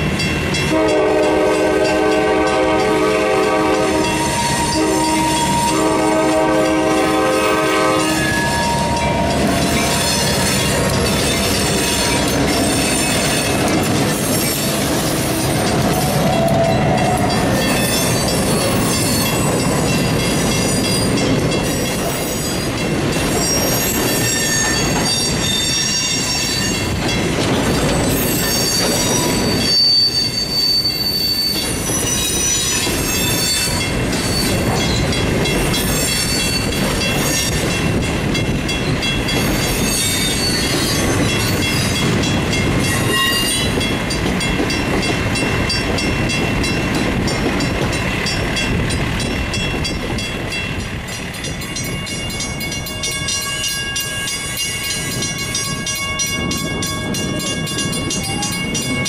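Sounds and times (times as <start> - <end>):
freight cars rumbling on rails: 0.0 - 59.0
steel wheels squealing: 4.0 - 6.0, 7.0 - 37.8, 38.8 - 44.5.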